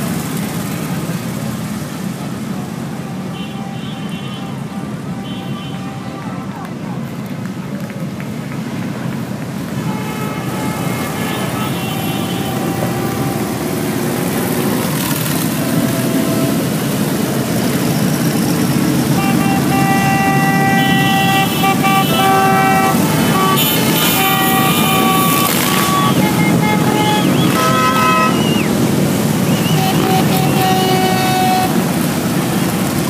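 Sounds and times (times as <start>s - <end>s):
motorcycle engines running: 0.0s - 33.0s
vehicle horns honking: 2.9s - 6.5s, 9.8s - 16.9s, 18.4s - 32.2s.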